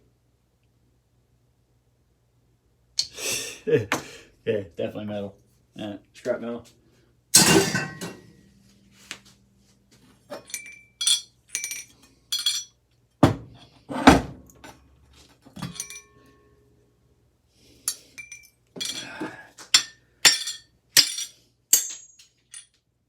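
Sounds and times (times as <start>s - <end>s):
metal parts clinking: 7.4s - 8.2s, 10.3s - 12.7s, 15.6s - 16.3s, 17.9s - 22.8s.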